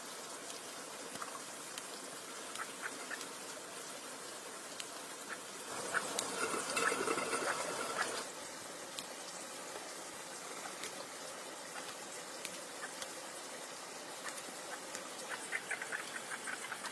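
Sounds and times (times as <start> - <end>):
faint hiss: 0.0 - 16.9
small ticks: 0.4 - 3.8, 4.6 - 8.3, 8.9 - 16.9
liquid pouring and splashing: 5.6 - 16.9.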